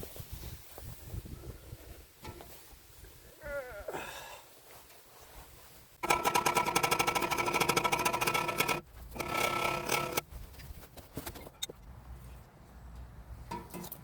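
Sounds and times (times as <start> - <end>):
pneumatic tool hammering metal: 6.0 - 10.2.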